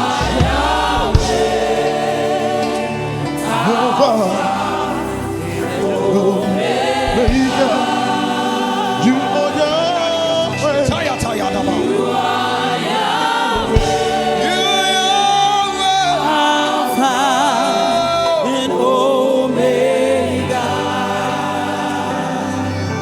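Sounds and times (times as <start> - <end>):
sharp percussion hits: 0.0 - 2.8, 7.0 - 8.1, 13.6 - 14.6
gospel choir singing: 0.0 - 23.0.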